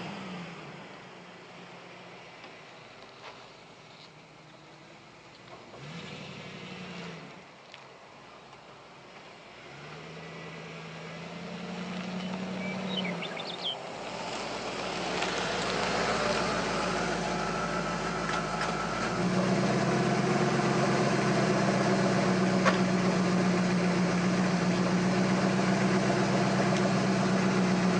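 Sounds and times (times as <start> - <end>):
engine idling: 15.1 - 27.9.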